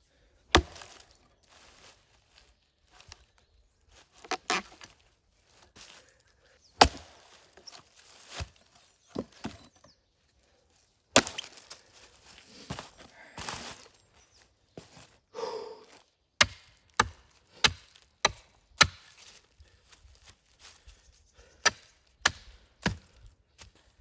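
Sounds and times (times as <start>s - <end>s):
axe chopping wood: 0.5s - 1.0s, 6.8s - 7.3s, 11.2s - 11.6s, 16.4s - 19.4s, 21.6s - 23.1s.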